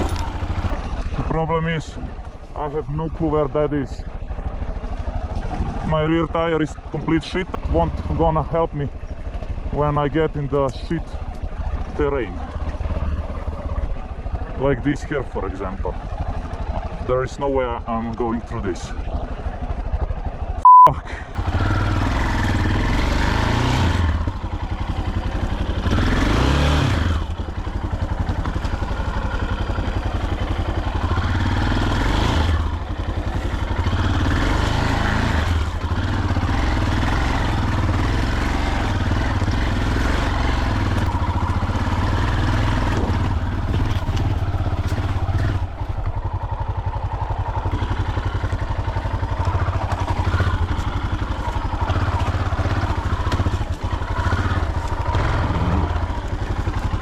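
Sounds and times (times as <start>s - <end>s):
dirt bike engine revving: 0.0s - 1.4s, 21.1s - 57.0s
censor bleep: 20.6s - 21.0s.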